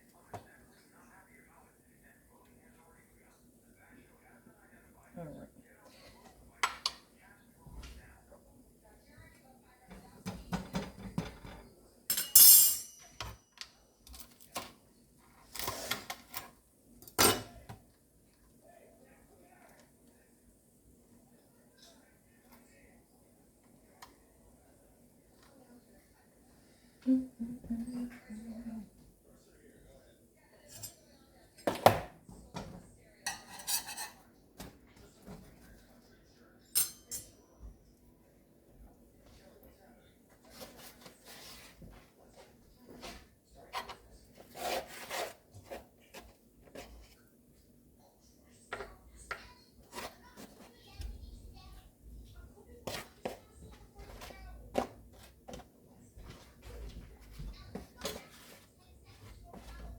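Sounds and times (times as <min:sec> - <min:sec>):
kitchen utensils clattering: 0:09.9 - 0:14.7, 0:15.5 - 0:17.7, 0:31.6 - 0:35.6, 0:36.7 - 0:37.4
metallic clatter with ringing: 0:12.1 - 0:13.6.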